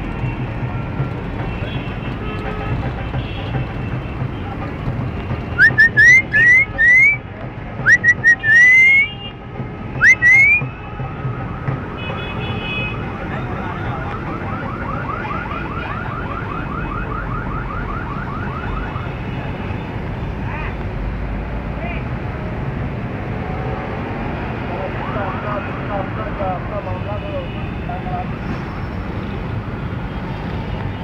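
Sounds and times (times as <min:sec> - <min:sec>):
parrot rising chirps: 0:05.6 - 0:07.2, 0:07.9 - 0:09.1, 0:10.0 - 0:10.6
parrot whistling: 0:05.6 - 0:07.2, 0:07.8 - 0:09.1, 0:10.0 - 0:10.6.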